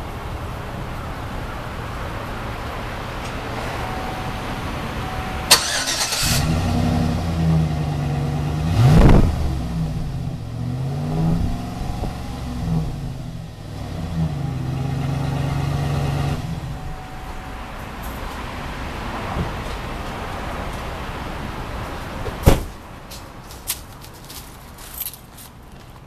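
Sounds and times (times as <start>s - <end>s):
truck engine revving: 5.5s - 17.5s.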